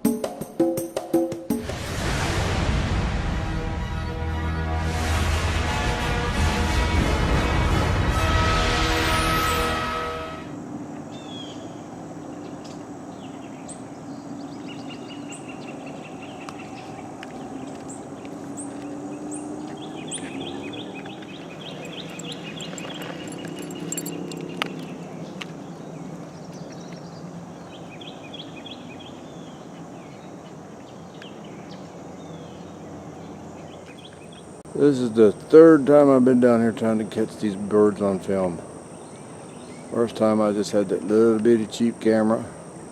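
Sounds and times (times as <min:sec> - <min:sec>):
birds calling and chirping: 0:10.7 - 0:34.6, 0:36.4 - 0:42.9.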